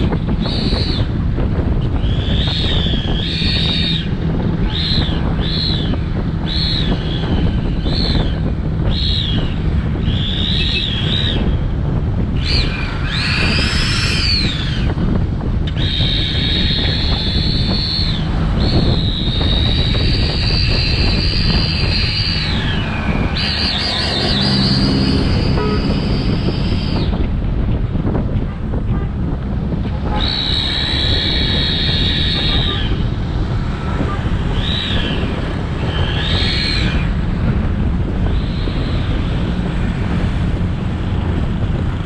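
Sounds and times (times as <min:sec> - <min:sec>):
motorcycle engine and road rumble: 0:00.0 - 0:42.0
wind buffeting microphone: 0:00.0 - 0:42.0
high whistling whine: 0:01.8 - 0:11.6, 0:12.4 - 0:27.3, 0:30.1 - 0:33.2, 0:33.8 - 0:37.2.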